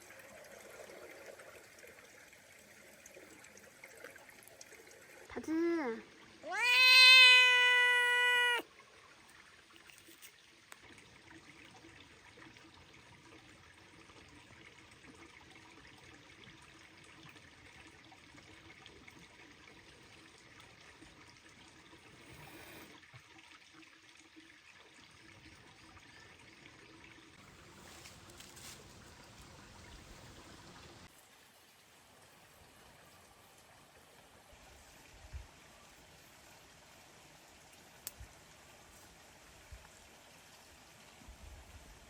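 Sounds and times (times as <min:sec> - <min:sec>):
faint water trickle: 0:00.0 - 0:42.0
cat meowing: 0:06.4 - 0:08.6.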